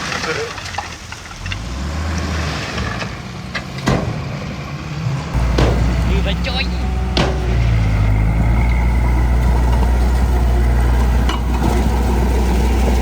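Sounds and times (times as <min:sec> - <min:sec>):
diesel engine running: 0:03.2 - 0:13.0.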